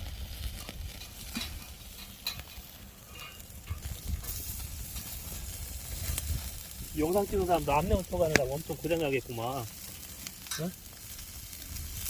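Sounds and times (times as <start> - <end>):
meat sizzling on a grill: 0.0 - 12.0
sharp pops: 8.1 - 8.7.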